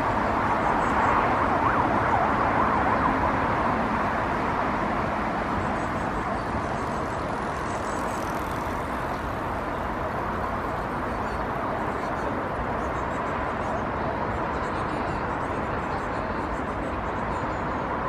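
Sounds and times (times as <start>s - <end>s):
emergency vehicle siren wailing: 0.0s - 3.7s
road traffic noise: 0.0s - 18.0s.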